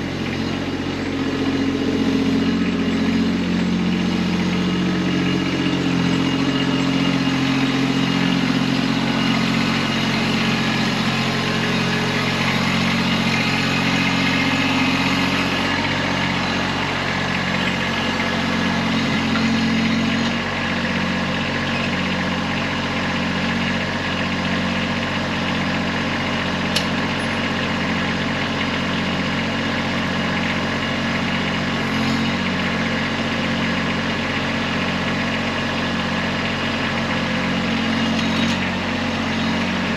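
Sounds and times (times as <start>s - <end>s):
tractor diesel engine running: 0.0s - 39.9s
sharp click: 26.7s - 27.0s.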